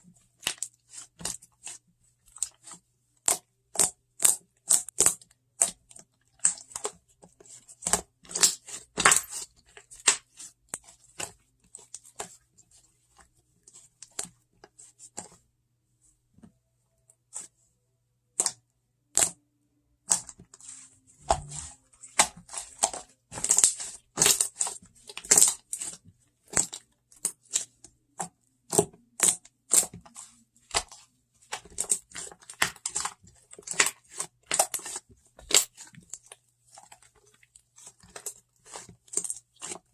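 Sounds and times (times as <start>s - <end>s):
slime popping and crackling: 21.2s - 27.7s, 28.7s - 37.0s.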